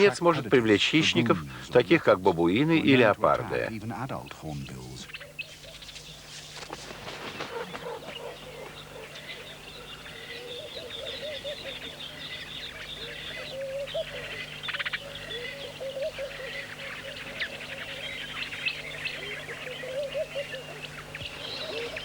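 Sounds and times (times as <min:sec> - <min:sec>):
birds chirping and twittering: 0:00.0 - 0:22.0
lower wavering bird call: 0:07.6 - 0:22.0.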